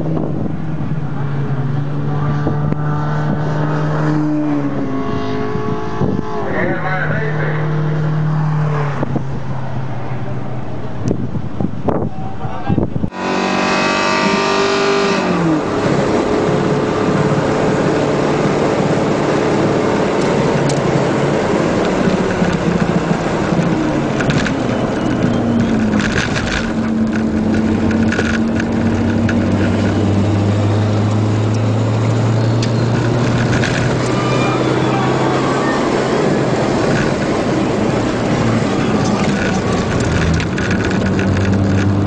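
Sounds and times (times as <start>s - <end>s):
car engine running hard: 0.0s - 12.0s, 13.0s - 42.0s
wind and road noise: 0.0s - 42.0s
sharp clicks or rattles: 21.7s - 30.1s, 31.0s - 34.2s, 36.8s - 42.0s.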